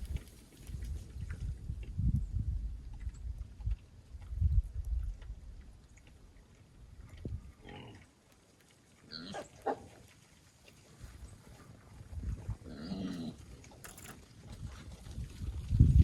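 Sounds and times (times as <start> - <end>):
low wind rumble: 0.0 - 5.8, 14.5 - 16.0
wild hogs grunting and squealing: 7.4 - 8.2, 9.0 - 10.2, 12.4 - 13.8.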